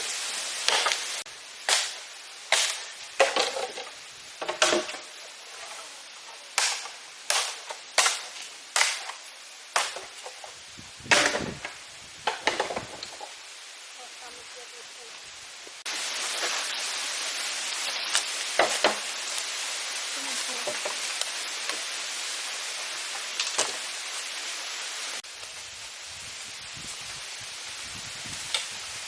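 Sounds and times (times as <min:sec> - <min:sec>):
sharp chopping strikes: 0:01.7 - 0:02.9, 0:06.6 - 0:09.2, 0:09.8 - 0:10.2.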